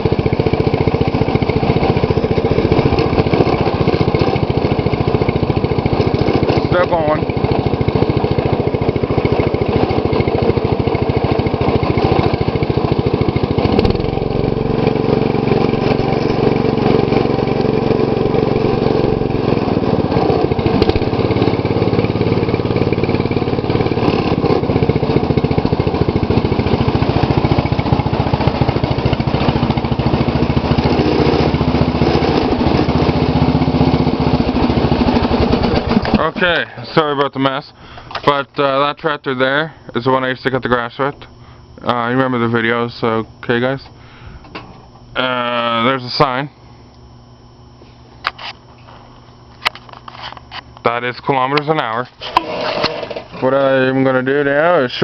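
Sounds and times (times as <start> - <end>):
lawn tractor engine running: 0.0 - 39.7, 46.9 - 55.0.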